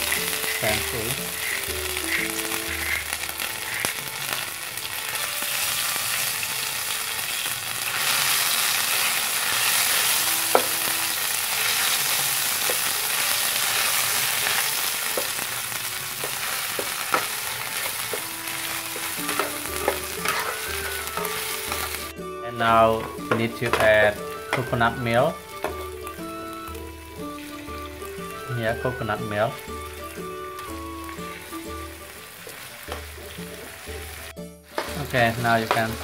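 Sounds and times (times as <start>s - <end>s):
spice paste sizzling in oil: 0.0s - 36.0s
metal spatula tapping a pan: 10.5s - 10.9s, 14.4s - 15.4s, 16.2s - 22.1s, 22.9s - 24.8s, 25.5s - 26.2s, 34.7s - 36.0s.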